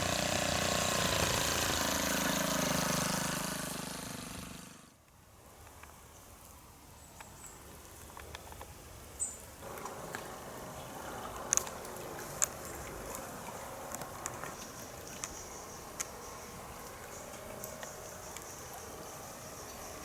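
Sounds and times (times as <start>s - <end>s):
hedge trimmer running: 0.0s - 5.0s.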